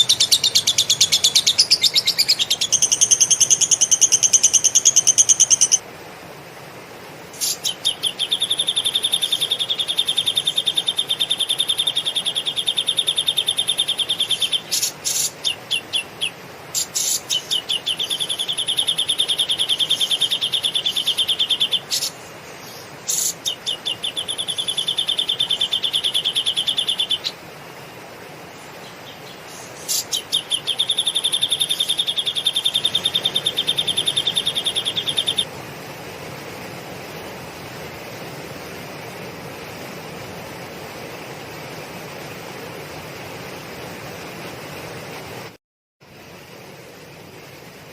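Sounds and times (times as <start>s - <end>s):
cage bird trilling: 0.0s - 5.8s, 7.4s - 22.2s, 23.1s - 27.3s, 29.2s - 35.5s
steady hiss: 0.0s - 47.9s.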